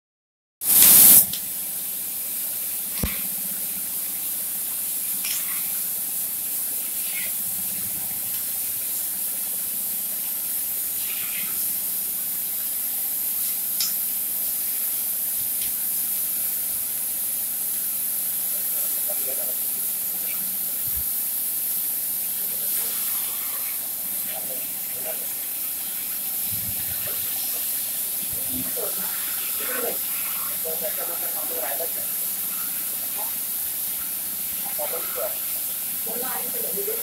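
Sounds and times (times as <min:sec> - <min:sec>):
loud rush of gas: 0:00.6 - 0:01.3
cutting torch hissing: 0:00.6 - 0:37.0.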